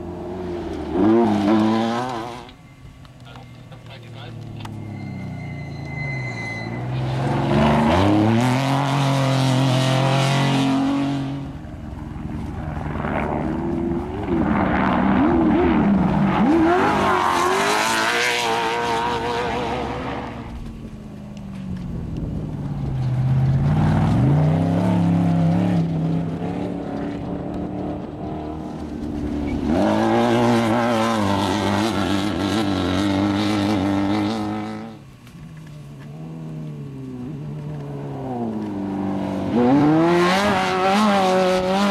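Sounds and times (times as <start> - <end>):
race vehicles driving past revving: 0.0 - 41.9.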